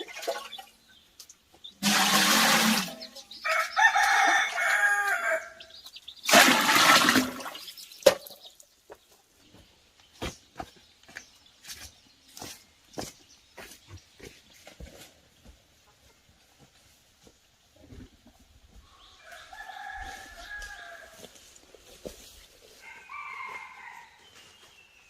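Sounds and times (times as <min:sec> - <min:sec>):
rooster crowing: 0:03.4 - 0:05.7, 0:19.2 - 0:21.3, 0:22.8 - 0:24.2.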